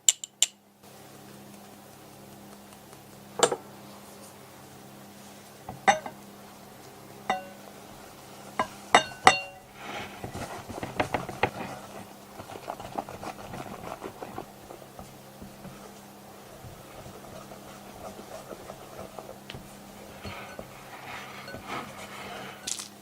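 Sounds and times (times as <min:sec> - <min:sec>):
utensil clinking on mixing bowl: 0:05.7 - 0:06.2, 0:07.3 - 0:07.6, 0:08.6 - 0:09.7, 0:19.5 - 0:22.9
utensil scraping bowl: 0:08.6 - 0:23.0.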